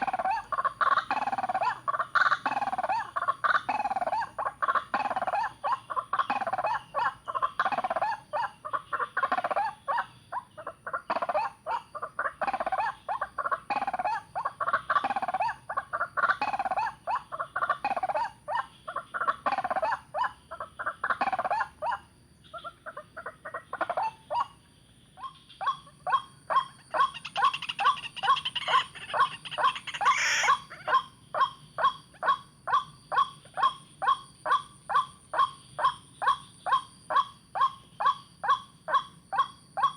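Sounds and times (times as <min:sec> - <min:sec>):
waterhen calling: 0:00.0 - 0:09.7, 0:26.1 - 0:31.5.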